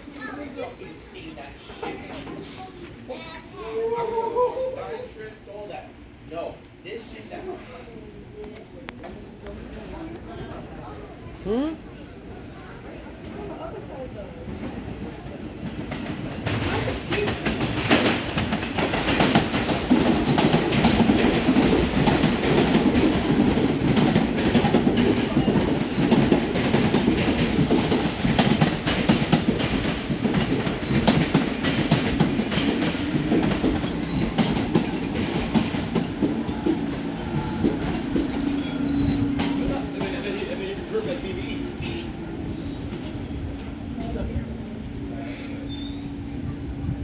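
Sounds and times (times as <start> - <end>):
subway wheels clattering on rails: 0.0 - 5.1, 8.9 - 47.0.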